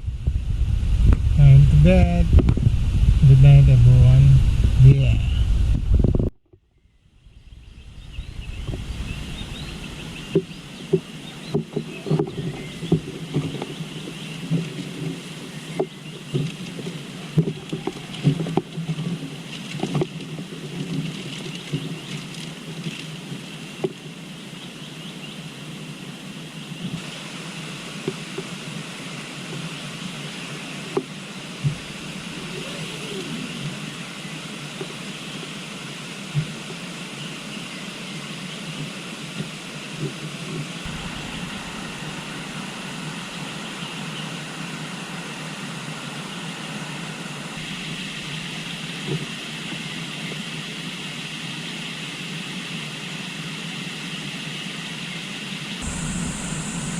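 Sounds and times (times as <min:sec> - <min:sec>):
river water rushing: 0:30.6 - 0:34.6, 0:40.8 - 0:51.0, 0:55.8 - 0:56.9.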